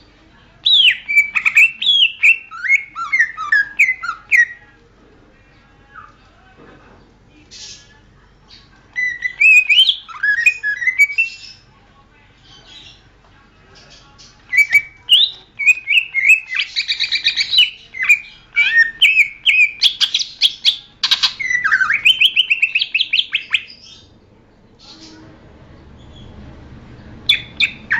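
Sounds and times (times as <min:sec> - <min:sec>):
bird singing whistled notes: 0:00.7 - 0:04.6, 0:09.0 - 0:11.6, 0:14.5 - 0:24.0, 0:27.3 - 0:27.9.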